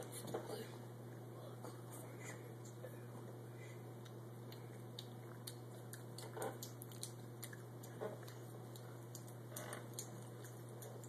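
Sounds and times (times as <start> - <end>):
birds chewing and nibbling: 4.0 - 11.0.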